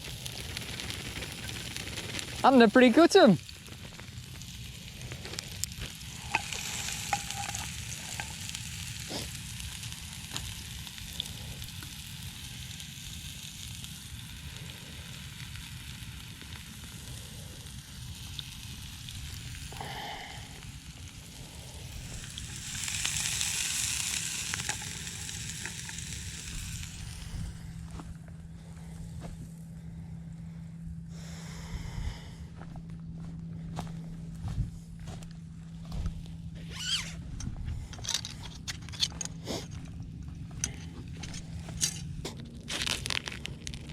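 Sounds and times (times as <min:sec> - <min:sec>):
onions sizzling: 0:00.0 - 0:27.6
frying pops and crackles: 0:00.0 - 0:28.1, 0:37.8 - 0:43.9.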